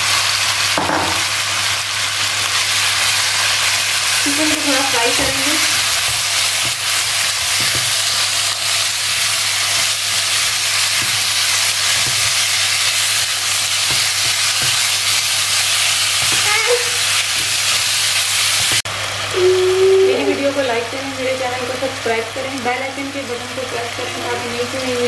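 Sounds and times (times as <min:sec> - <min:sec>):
chicken sizzling in oil: 0:00.0 - 0:25.0
spatula stirring and scraping: 0:04.2 - 0:18.8.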